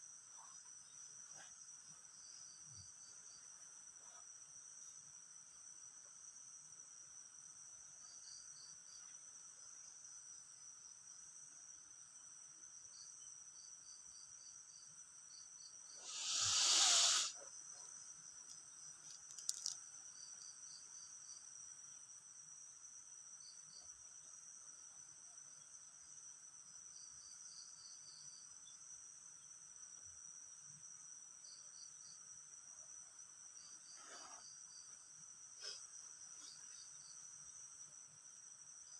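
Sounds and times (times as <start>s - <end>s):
insects trilling: 14.4s - 22.0s
short insect chirps: 15.8s - 17.5s, 18.4s - 20.9s
loud rushing hiss: 16.0s - 17.3s.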